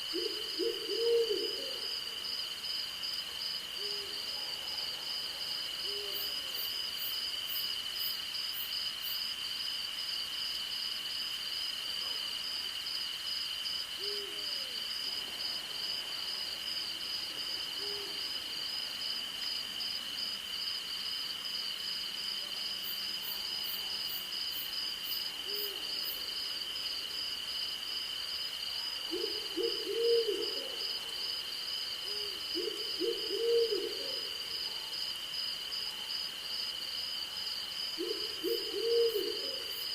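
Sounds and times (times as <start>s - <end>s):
owl hoots: 0.1s - 1.9s, 29.1s - 30.8s, 32.1s - 34.3s, 38.0s - 39.7s.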